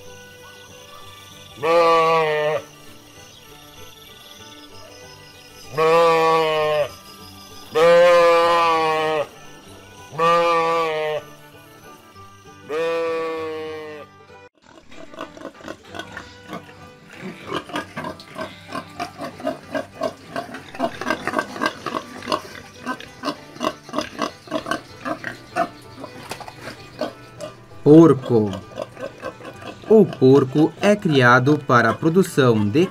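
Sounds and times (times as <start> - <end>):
sheep bleating: 1.5 - 2.8, 5.6 - 7.0, 7.7 - 11.5, 12.5 - 26.2
pigs grunting: 5.8 - 6.9, 7.7 - 9.4, 12.7 - 32.9.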